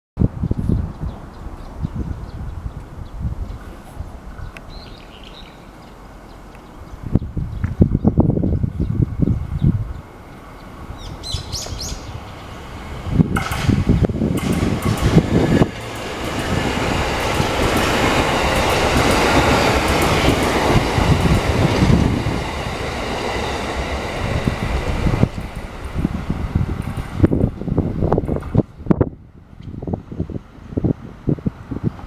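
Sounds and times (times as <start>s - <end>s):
train wheels rushing on rail: 7.2s - 32.0s
wheels clacking over rails: 11.5s - 28.8s.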